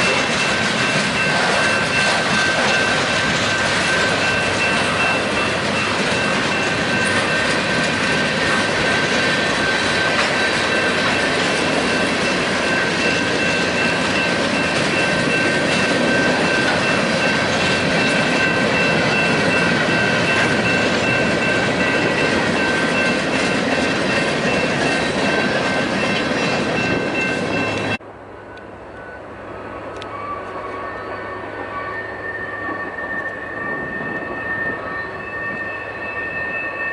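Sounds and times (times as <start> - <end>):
freight train wheels clattering: 0.0 - 28.0
high wheel squeal: 0.0 - 36.9.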